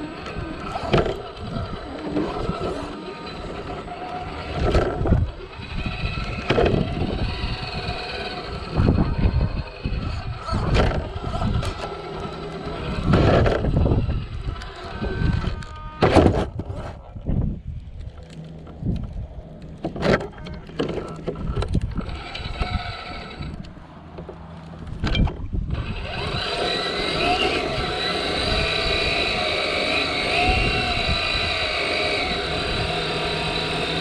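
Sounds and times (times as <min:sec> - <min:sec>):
toy car electric motor whining: 0:00.0 - 0:16.9, 0:18.0 - 0:23.9, 0:25.6 - 0:34.0
low rumbling bumps: 0:04.5 - 0:26.3.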